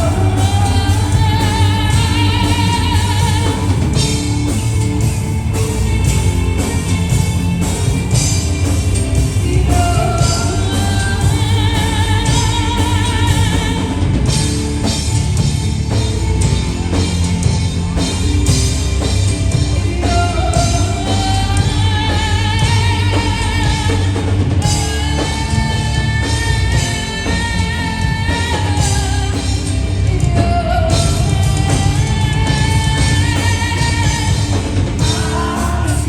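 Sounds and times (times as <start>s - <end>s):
high sung vocal with vibrato: 0.0s - 4.6s, 9.2s - 14.3s, 19.8s - 36.0s
drum kit beat: 0.0s - 36.0s
heavy bass: 0.0s - 36.0s.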